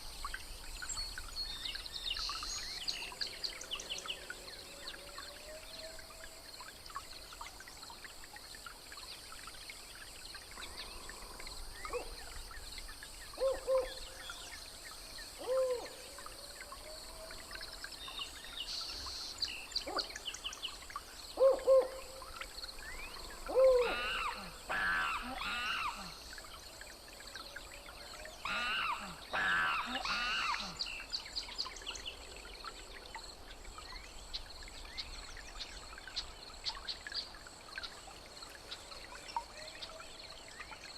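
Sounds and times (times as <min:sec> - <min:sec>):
wavering animal calls: 0:23.5 - 0:26.2.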